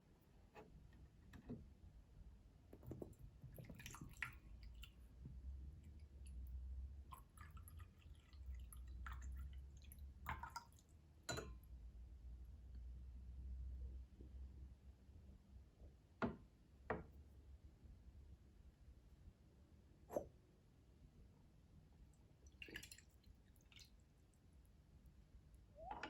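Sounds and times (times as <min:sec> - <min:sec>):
water dripping: 0:02.8 - 0:11.7, 0:22.4 - 0:24.3, 0:25.5 - 0:26.0.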